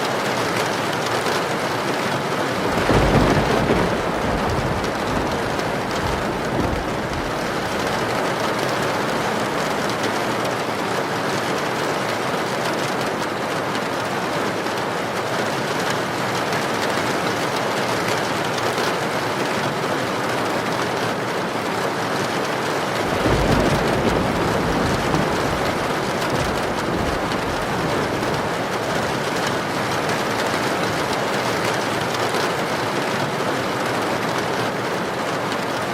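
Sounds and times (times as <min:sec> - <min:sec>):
heavy rain pouring: 0:00.0 - 0:35.9
thunder rumbling: 0:02.6 - 0:10.7, 0:23.0 - 0:29.4.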